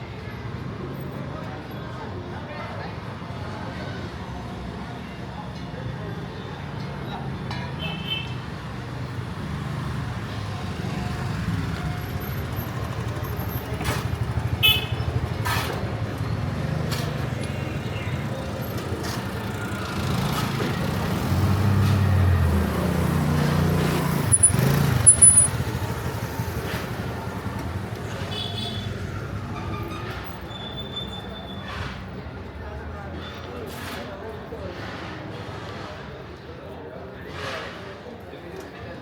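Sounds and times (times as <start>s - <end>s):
vehicle engines passing: 8.4s - 36.3s.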